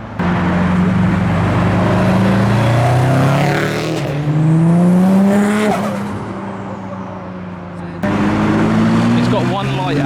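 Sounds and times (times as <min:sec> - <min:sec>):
car engine accelerating hard: 0:00.0 - 0:06.9, 0:07.8 - 0:10.0.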